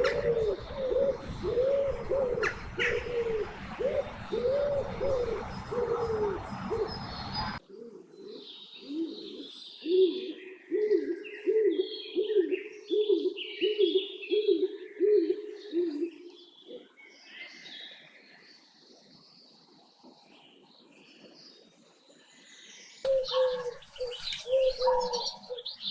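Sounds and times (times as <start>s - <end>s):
bird cooing: 0.0s - 16.9s, 23.1s - 25.9s
small birds chirping: 18.3s - 25.9s.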